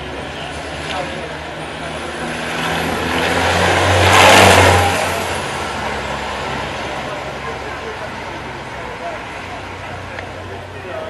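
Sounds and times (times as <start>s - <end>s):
vehicle engine driving past: 1.0s - 7.6s.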